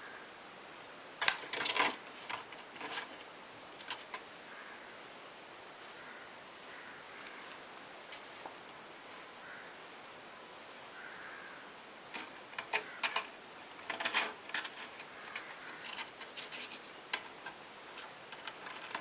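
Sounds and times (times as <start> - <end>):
kitten playing clicks and taps: 1.2 - 4.3, 12.1 - 19.0.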